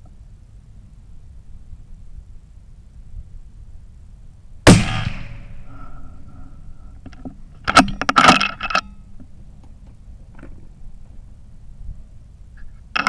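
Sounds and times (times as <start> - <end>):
loud rifle shot with echo: 4.7 - 5.8.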